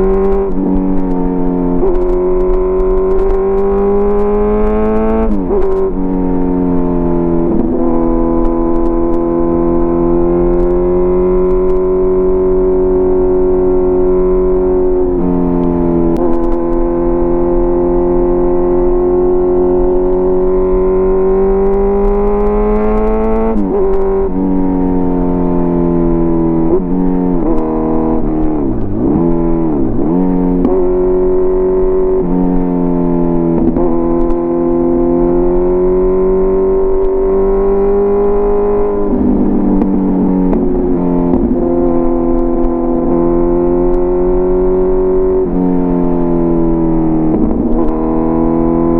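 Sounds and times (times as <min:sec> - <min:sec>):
motorcycle engine under load: 0:18.8 - 0:32.2.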